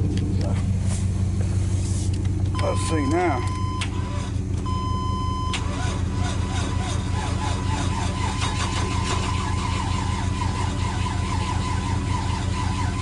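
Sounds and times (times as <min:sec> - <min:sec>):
engine cranking without starting: 0:02.1 - 0:13.0
electronic warning tone: 0:02.6 - 0:04.0.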